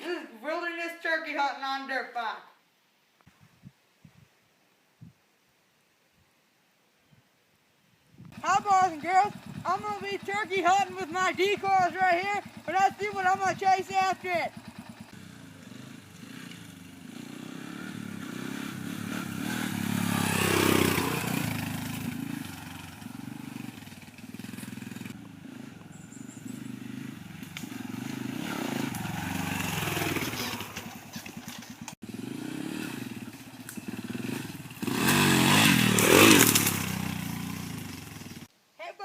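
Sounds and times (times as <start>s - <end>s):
dirt bike engine revving: 8.3s - 38.5s.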